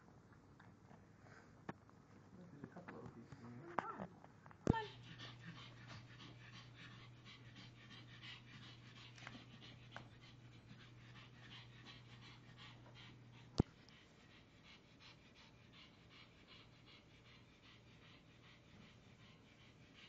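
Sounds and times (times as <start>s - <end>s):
dog panting: 4.7s - 20.0s.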